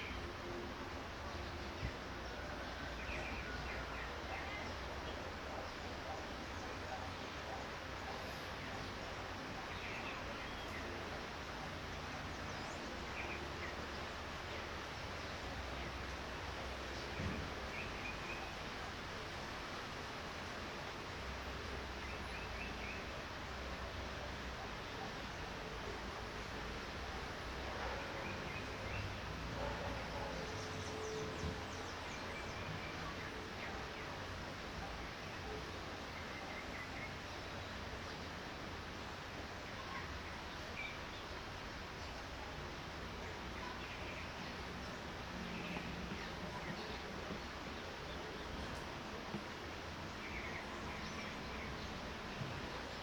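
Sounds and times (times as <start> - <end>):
light rain hiss: 0.0 - 53.0.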